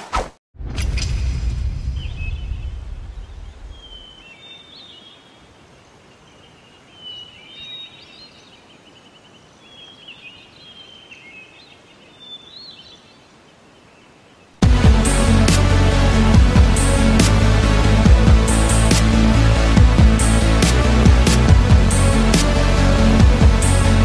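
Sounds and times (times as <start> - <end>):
low rumble: 0.6 - 4.1, 14.6 - 24.0
bird chirping: 1.9 - 14.6
faint steady hiss: 3.0 - 14.6.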